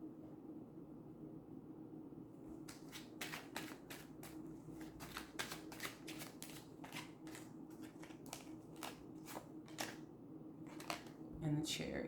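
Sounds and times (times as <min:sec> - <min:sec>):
faint low hum: 0:00.0 - 0:12.0
cards being shuffled: 0:02.6 - 0:10.0, 0:10.7 - 0:11.2.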